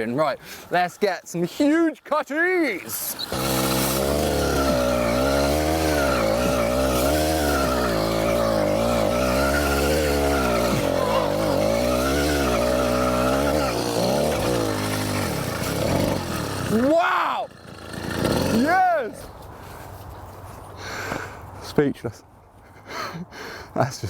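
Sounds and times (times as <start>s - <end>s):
small two-stroke engine revving: 2.9s - 19.3s.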